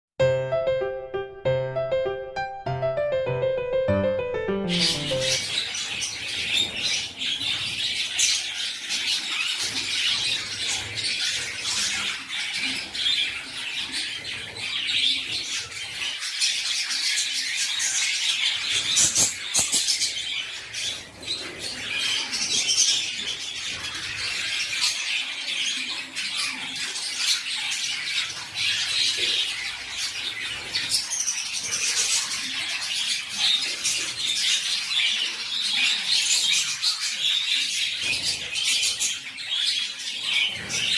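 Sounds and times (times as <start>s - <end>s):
small birds chirping: 0.2s - 40.9s.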